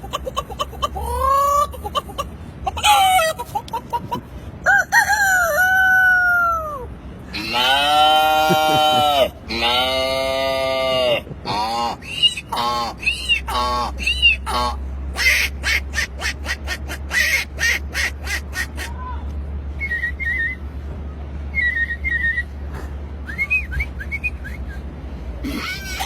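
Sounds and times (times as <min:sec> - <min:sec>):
man mimicking animal calls: 0:06.6 - 0:17.5, 0:25.4 - 0:26.0.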